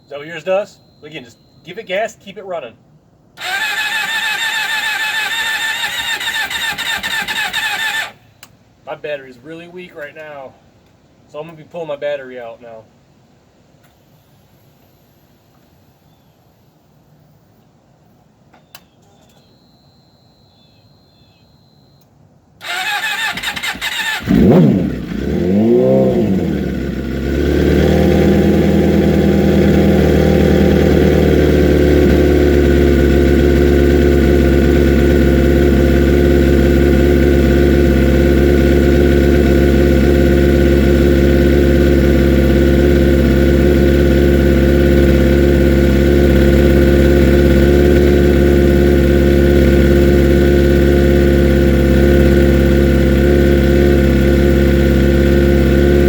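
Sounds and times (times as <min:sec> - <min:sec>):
motorcycle engine revving and idling: 0:03.4 - 0:08.2, 0:22.6 - 0:56.0
starter motor cranking: 0:03.4 - 0:08.2, 0:22.6 - 0:56.0.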